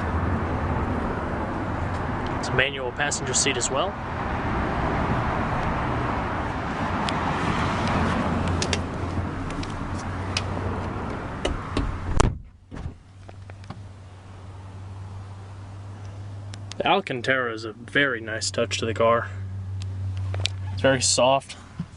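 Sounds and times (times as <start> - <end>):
car door shutting: 11.4 - 13.8.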